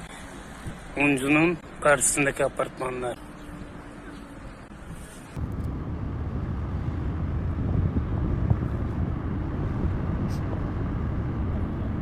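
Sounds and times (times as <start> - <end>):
low outdoor rumble: 3.7 - 12.0.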